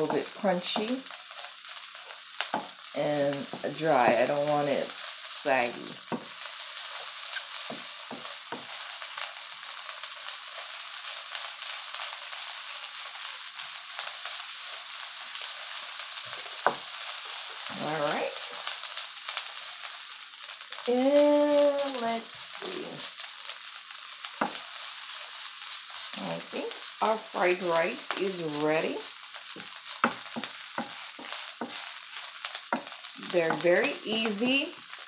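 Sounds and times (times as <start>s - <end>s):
rice sizzling in a wok: 0.0s - 35.0s
wooden spatula scraping: 29.6s - 34.6s.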